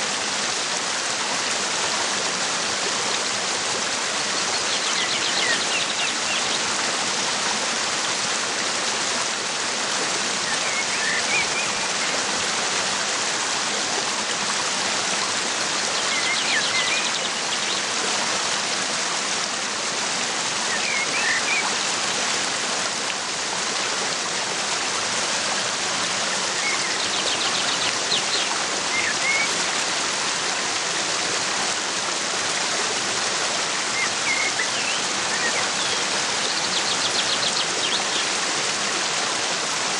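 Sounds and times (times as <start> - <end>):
waterfall rushing: 0.0 - 39.9
small birds chirping: 33.9 - 38.3.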